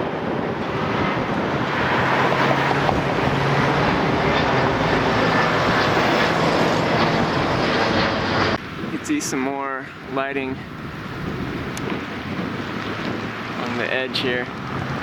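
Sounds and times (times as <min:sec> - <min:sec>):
vehicle engine hum: 0:00.0 - 0:09.0, 0:10.6 - 0:15.0
broad rushing noise: 0:00.0 - 0:15.0
wind on microphone: 0:00.0 - 0:15.0.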